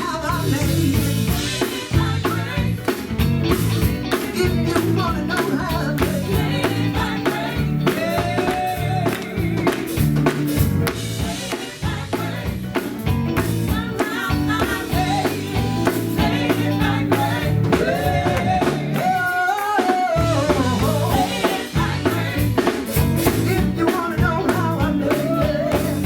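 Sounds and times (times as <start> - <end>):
gospel band playing: 0.0 - 26.0
person singing: 4.2 - 10.0, 13.7 - 26.0.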